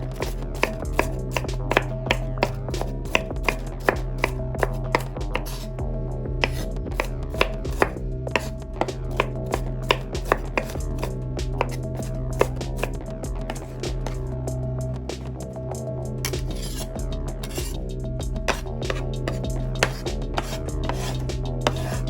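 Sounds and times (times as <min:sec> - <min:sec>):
knife chopping on cutting board: 0:00.2 - 0:05.6, 0:06.4 - 0:14.2, 0:18.5 - 0:22.0.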